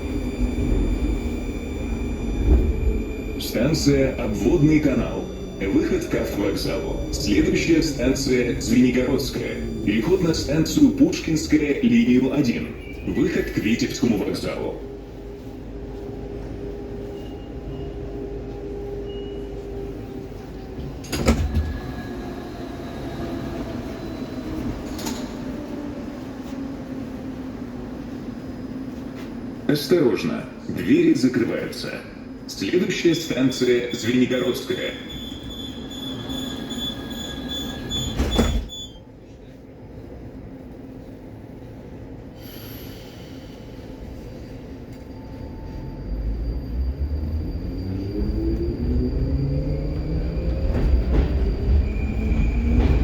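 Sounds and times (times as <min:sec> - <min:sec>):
high pulsing squeal: 0:00.0 - 0:13.3, 0:45.1 - 0:53.0
metro train rumble in tunnel: 0:00.0 - 0:53.0.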